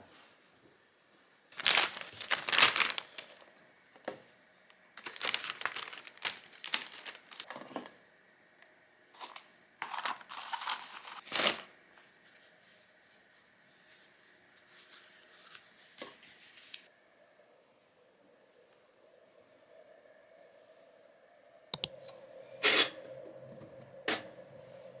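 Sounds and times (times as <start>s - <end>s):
rustling handling noise: 1.5s - 3.5s, 5.0s - 7.7s, 9.2s - 16.9s.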